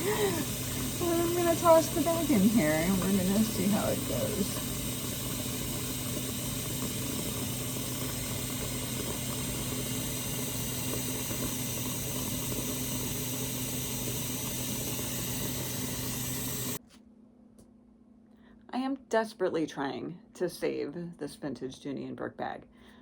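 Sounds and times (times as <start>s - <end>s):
low hum: 0.0s - 16.8s.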